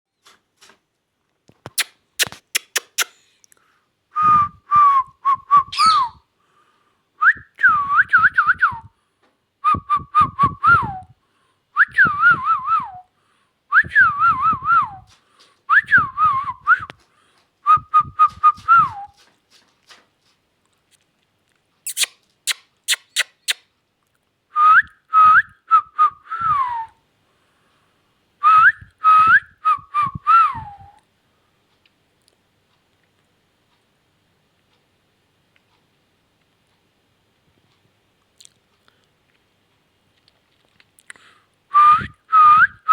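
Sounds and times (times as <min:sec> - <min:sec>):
sharp clicks: 0:01.6 - 0:03.6
parakeet whistling: 0:05.6 - 0:06.2, 0:21.9 - 0:23.6.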